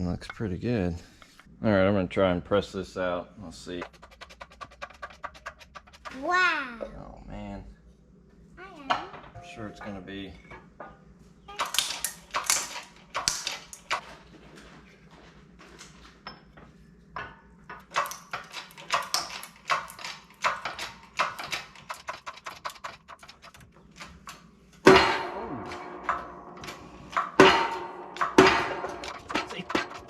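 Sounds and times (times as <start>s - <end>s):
metal engine parts clanking: 17.7s - 30.0s
loud metal bang: 24.9s - 30.0s.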